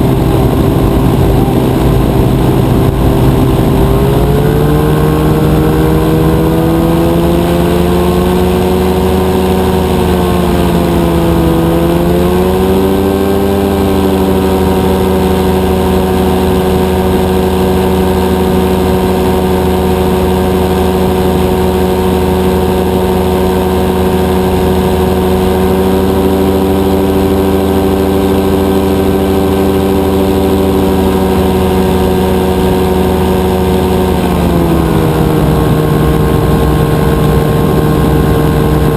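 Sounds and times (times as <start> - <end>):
two-stroke engine and propeller: 0.0 - 38.9.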